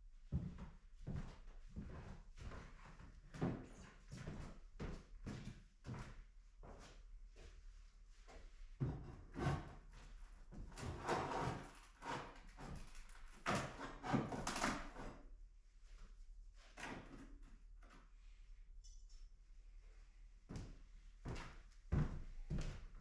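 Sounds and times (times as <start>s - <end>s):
hardboard scraping on floor: 10.8s - 12.3s.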